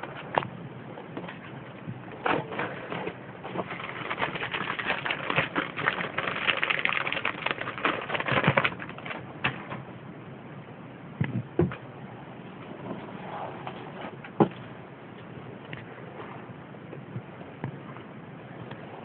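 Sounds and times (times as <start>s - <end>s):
lizard crunching prey: 3.7s - 9.2s.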